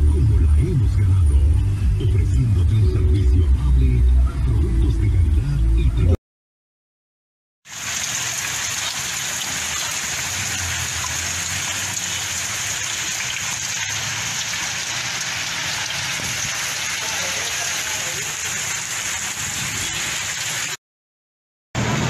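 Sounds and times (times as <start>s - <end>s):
floodwater rushing: 7.7s - 20.8s
heavy rain pouring: 7.7s - 20.8s, 21.8s - 22.0s.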